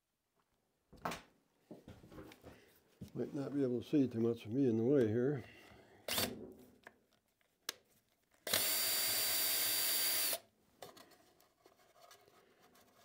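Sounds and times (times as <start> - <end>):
power drill whining: 8.5 - 10.4.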